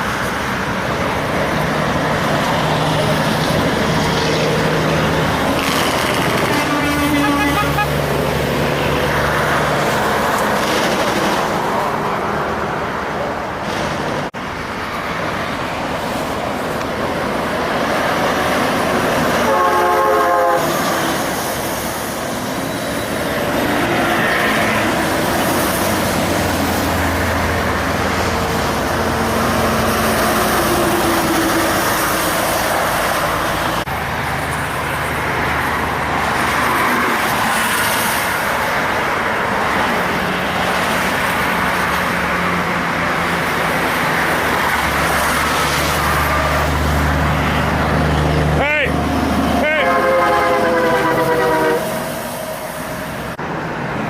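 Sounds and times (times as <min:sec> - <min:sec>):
heavy trucks passing: 0:00.0 - 0:54.0
tyre and road noise: 0:00.0 - 0:54.0
truck air horn: 0:05.6 - 0:08.0, 0:19.3 - 0:21.2, 0:49.5 - 0:52.8.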